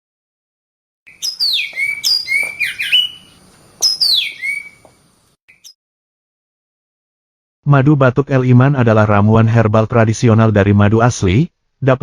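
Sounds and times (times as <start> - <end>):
bird whistling downward notes: 1.1 - 5.8.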